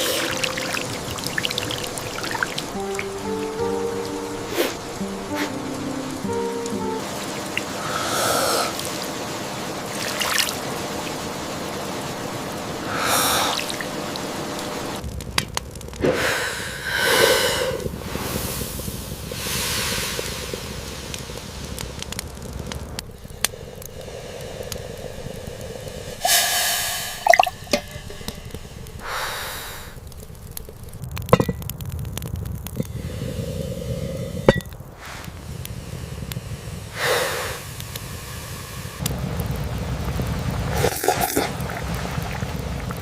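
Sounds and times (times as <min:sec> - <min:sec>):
rain falling: 0:00.0 - 0:16.0, 0:34.8 - 0:43.0
person breathing: 0:07.8 - 0:08.9, 0:12.8 - 0:13.7, 0:16.0 - 0:21.2, 0:23.2 - 0:27.2, 0:29.0 - 0:30.0, 0:32.8 - 0:39.0.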